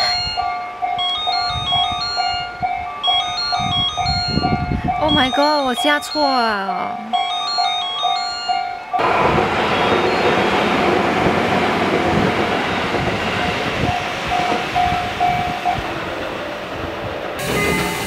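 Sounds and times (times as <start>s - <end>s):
electric train passing: 7.1s - 18.0s.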